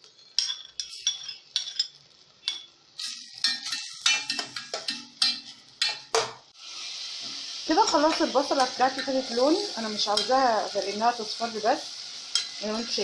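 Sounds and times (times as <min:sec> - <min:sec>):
metal spoon clinking against pot: 0:00.1 - 0:06.3, 0:10.0 - 0:10.4, 0:12.3 - 0:12.6.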